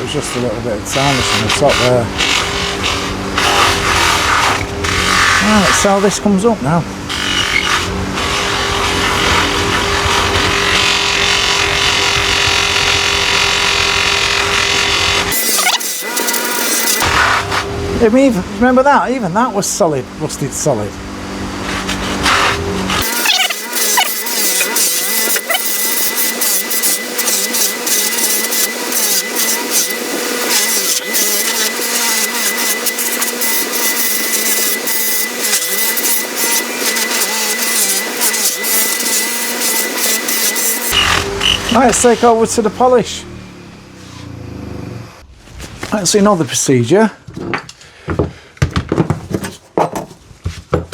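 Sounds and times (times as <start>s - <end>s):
wire wheel motor hum: 0.0s - 45.2s
wire brush scratching metal: 21.7s - 42.3s.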